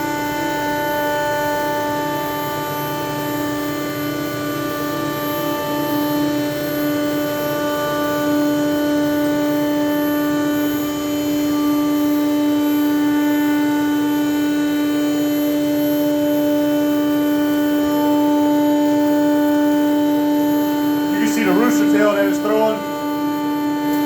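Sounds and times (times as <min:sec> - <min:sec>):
router spindle whining: 0:17.5 - 0:24.0.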